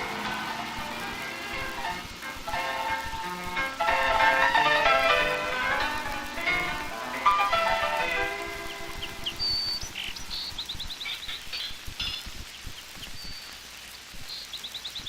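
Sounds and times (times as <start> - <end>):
small birds chirping: 5.8 - 15.0
bird trill: 7.4 - 12.3.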